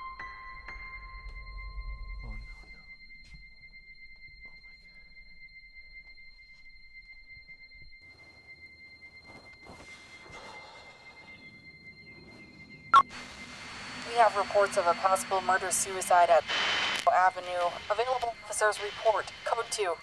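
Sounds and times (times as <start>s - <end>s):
high-pitched ringing tone: 0.0s - 20.0s
faint low rumble: 0.8s - 20.0s
hissy outdoor ambience: 7.8s - 20.0s.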